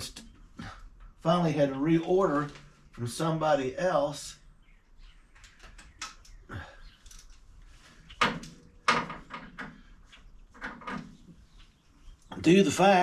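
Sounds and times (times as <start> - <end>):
objects knocking and clunking: 8.1 - 11.4.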